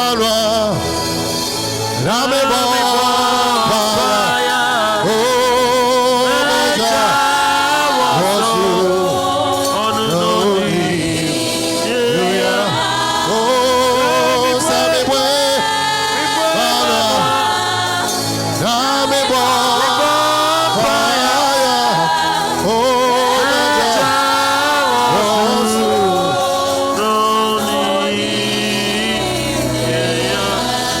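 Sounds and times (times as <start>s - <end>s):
congregation singing a hymn: 0.0s - 31.0s.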